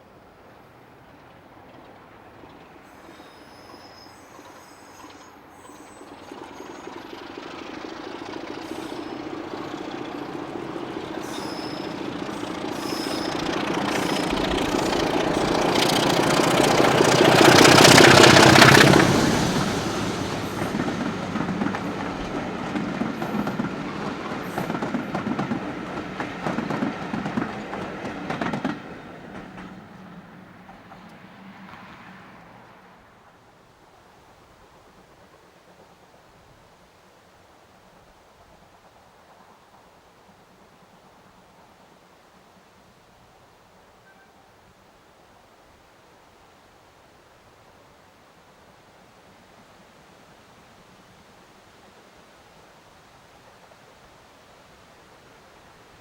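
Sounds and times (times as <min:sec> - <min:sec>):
train passing close by: 0:00.1 - 0:36.8
carriages rattling: 0:06.0 - 0:32.5.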